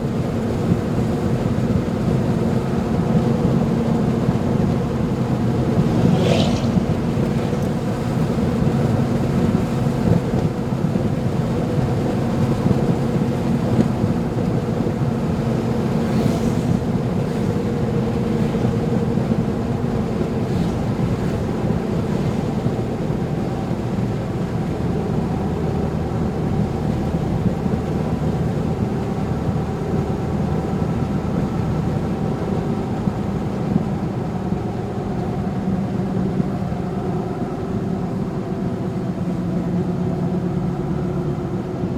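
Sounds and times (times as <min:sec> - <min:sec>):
vehicle driving on wet road: 0:00.2 - 0:33.4
high swishes: 0:05.7 - 0:07.6.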